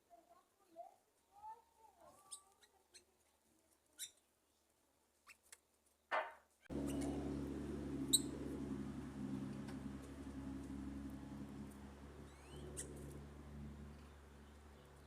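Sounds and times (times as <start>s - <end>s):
small birds chirping: 2.2s - 4.2s, 6.7s - 15.0s
low hum with rushing noise: 6.7s - 15.0s.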